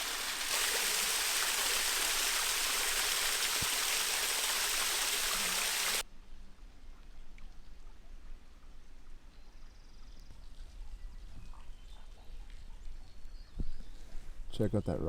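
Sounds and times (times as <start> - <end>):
rushing water hiss: 0.0 - 6.0.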